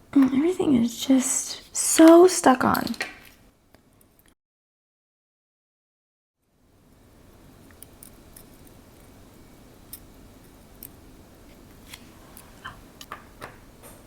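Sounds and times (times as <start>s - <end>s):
faint steady hiss: 6.4s - 14.0s.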